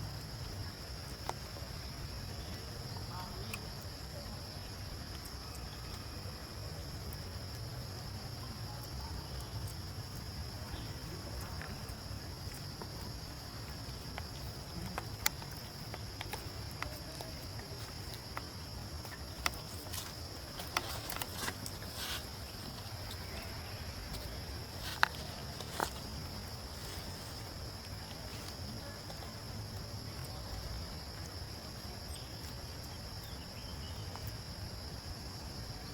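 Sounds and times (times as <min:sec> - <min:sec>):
sharp clicks and rustles: 0:14.2 - 0:23.5.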